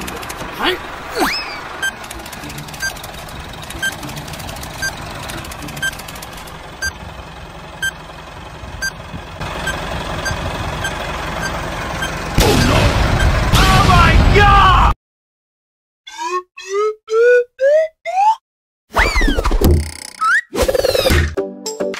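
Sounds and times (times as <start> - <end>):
electronic countdown beeps: 9.6 - 13.4, 16.1 - 18.4
loud explosion blast: 12.4 - 14.4.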